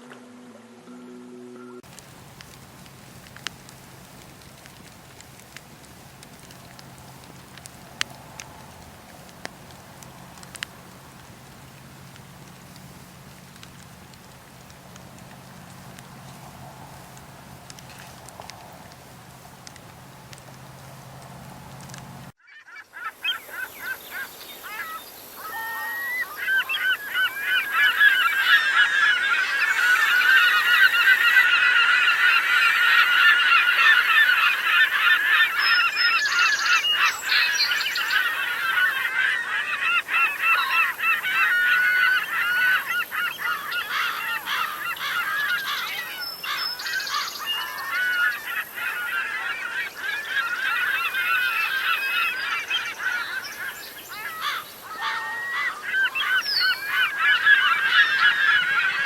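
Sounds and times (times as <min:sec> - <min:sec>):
flock of birds calling: 0:01.6 - 0:59.0.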